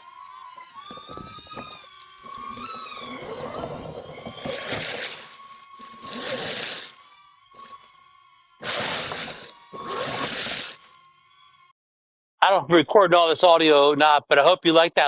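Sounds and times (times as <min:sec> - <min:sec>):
small motor whine: 0:00.0 - 0:11.7
leaves rustling and crunching: 0:04.2 - 0:06.9.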